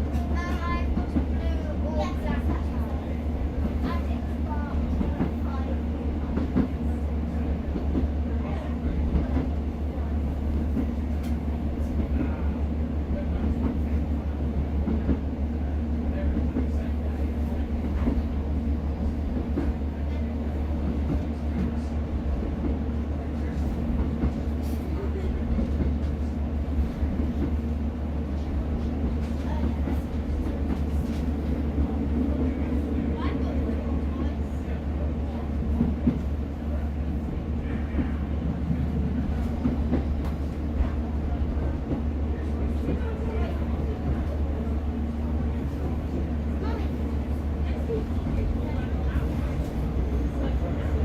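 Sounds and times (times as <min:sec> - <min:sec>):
diesel train engine drone: 0:00.0 - 0:51.0.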